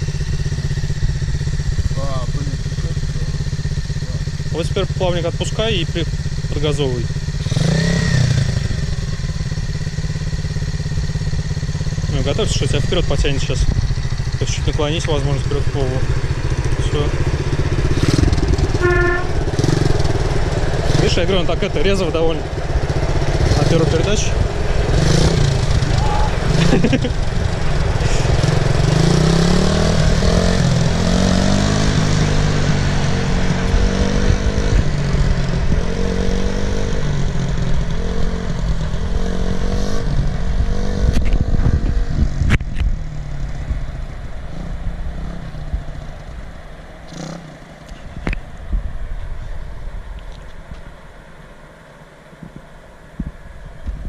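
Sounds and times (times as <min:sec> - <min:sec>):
motorcycle engine pulling away: 0:00.0 - 0:48.5.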